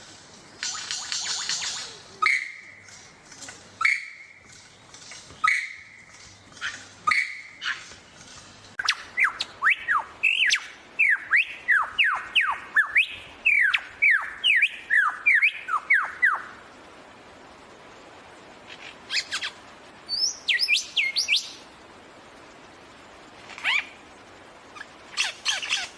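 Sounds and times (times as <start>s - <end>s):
bird calling: 0.6s - 16.6s, 18.7s - 21.6s, 23.5s - 24.0s, 24.7s - 25.9s.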